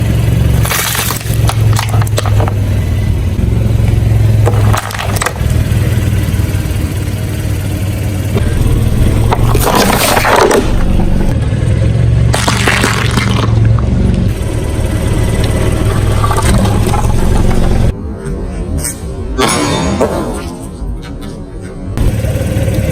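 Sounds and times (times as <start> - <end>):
tyres crunching objects: 0.0 - 3.0, 3.8 - 5.7, 8.4 - 11.4, 12.3 - 14.4
car engine running: 0.0 - 18.0, 21.9 - 22.9.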